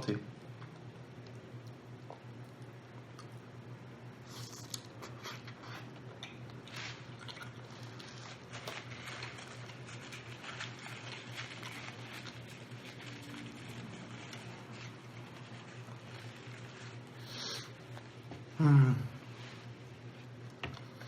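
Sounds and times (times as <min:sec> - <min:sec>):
chewing and biting food: 0:04.3 - 0:18.1.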